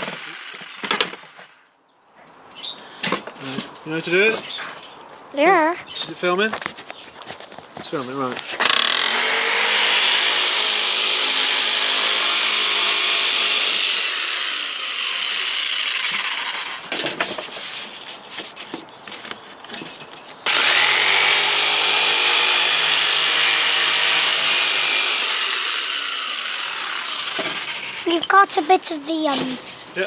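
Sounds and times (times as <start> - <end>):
power tool running on wood: 0.0 - 1.6, 8.6 - 17.0, 20.5 - 29.5.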